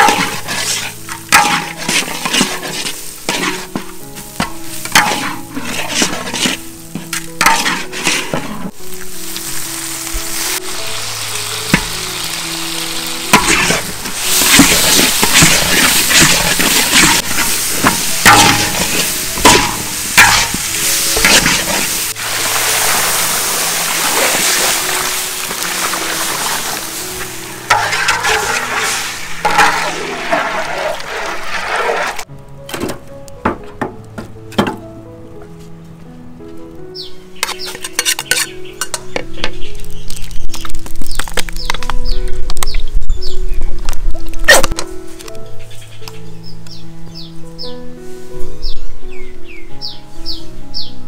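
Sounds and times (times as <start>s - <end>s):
utensil scraping and knocking: 0.0s - 8.8s, 13.3s - 21.9s, 37.4s - 39.6s
food sizzling in pan: 0.0s - 32.3s
soft background music: 0.0s - 51.0s.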